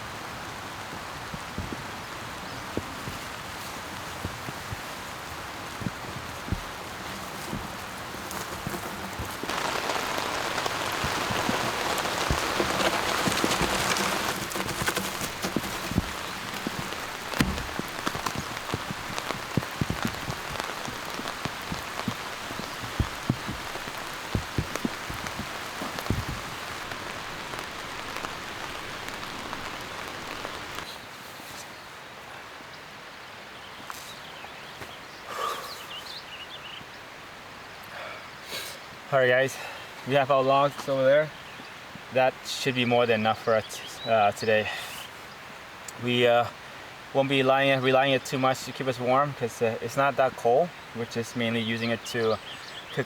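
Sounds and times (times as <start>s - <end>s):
steady rain hiss: 0.0s - 53.0s
knocks and thumps: 5.8s - 30.9s.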